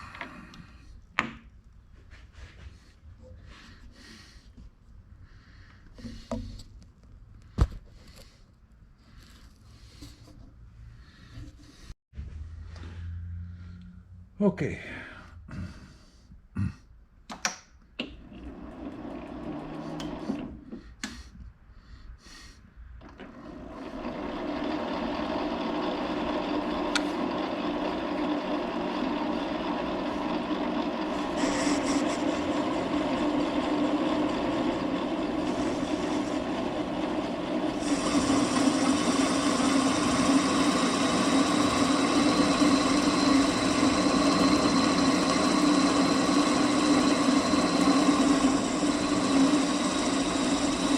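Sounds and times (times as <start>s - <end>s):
metal lathe motor hum: 18.2s - 20.5s, 23.2s - 50.9s.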